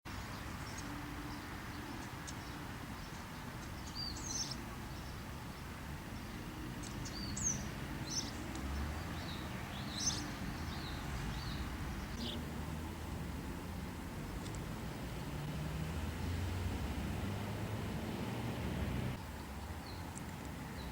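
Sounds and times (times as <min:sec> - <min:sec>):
small birds chirping: 0:00.2 - 0:12.5, 0:18.2 - 0:20.9
whistled bird calls: 0:00.7 - 0:05.6.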